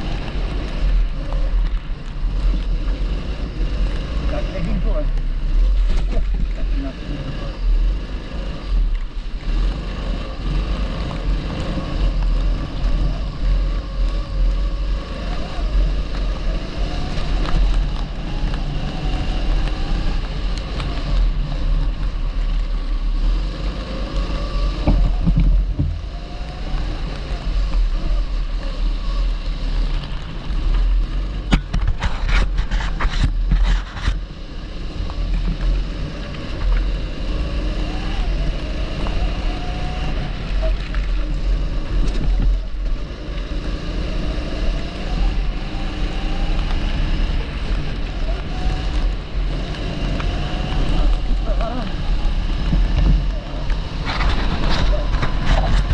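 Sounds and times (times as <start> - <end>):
kart engine running: 0.0 - 55.9
wind rumble on microphone: 0.0 - 55.9.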